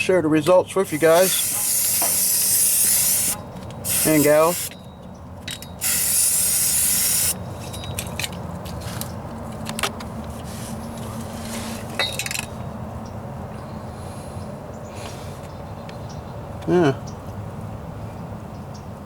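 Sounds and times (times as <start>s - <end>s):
aerosol spray can hissing: 0.9s - 4.7s, 5.8s - 7.4s.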